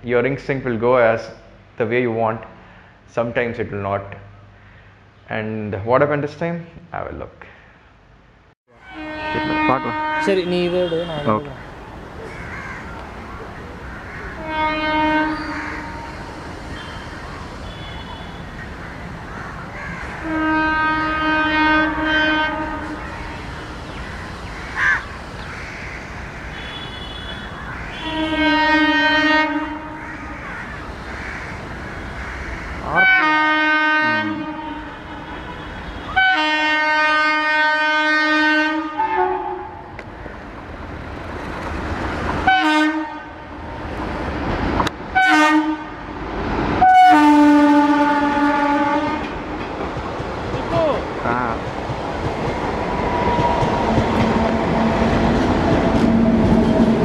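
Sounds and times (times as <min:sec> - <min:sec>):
passing trains rumbling: 0:08.7 - 0:57.0
locomotive horn blasts: 0:08.8 - 0:11.5, 0:14.4 - 0:16.2, 0:17.6 - 0:18.6, 0:20.2 - 0:23.0, 0:26.6 - 0:30.0, 0:32.9 - 0:39.8, 0:42.4 - 0:43.6, 0:45.1 - 0:46.0, 0:46.8 - 0:49.3.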